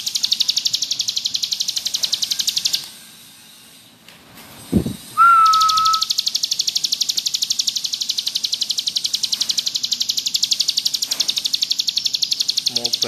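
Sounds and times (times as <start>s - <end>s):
bird buzzing rattle trill: 0.0s - 3.4s, 4.6s - 13.0s
held whistled note: 4.8s - 6.2s.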